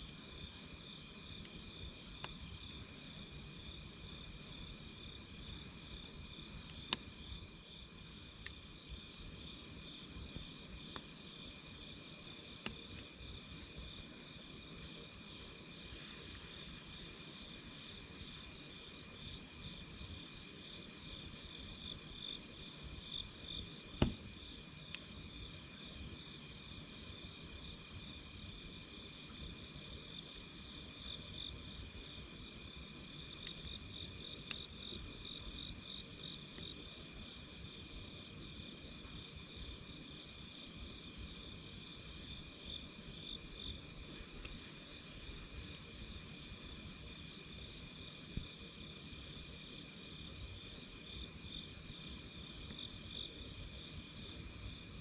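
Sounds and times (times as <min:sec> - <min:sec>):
campfire pops: 0:01.3 - 0:03.2, 0:06.5 - 0:07.3, 0:08.2 - 0:09.4, 0:10.3 - 0:11.3, 0:12.5 - 0:13.8, 0:23.3 - 0:25.2, 0:44.0 - 0:46.6.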